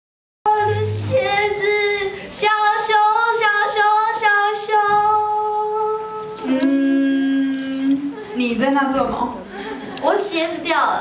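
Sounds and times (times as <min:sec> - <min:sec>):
woman singing slow melody: 0:00.5 - 0:08.4.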